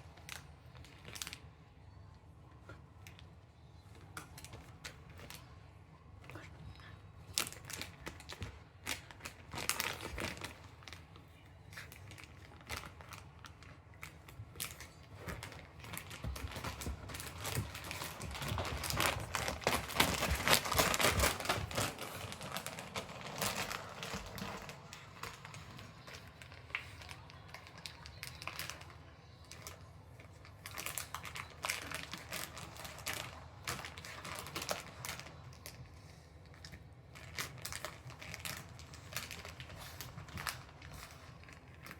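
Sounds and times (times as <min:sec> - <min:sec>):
plastic bag crinkling: 0:07.3 - 0:11.2, 0:11.8 - 0:35.8, 0:36.4 - 0:41.9.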